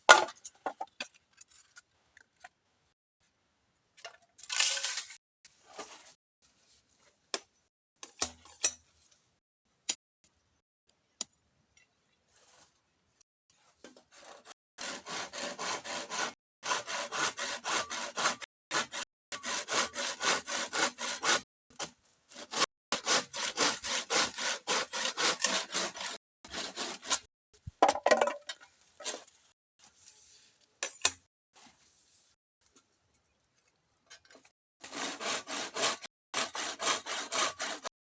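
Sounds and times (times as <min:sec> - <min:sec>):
hand saw cutting bamboo: 0:14.1 - 0:27.3, 0:34.8 - 0:37.9.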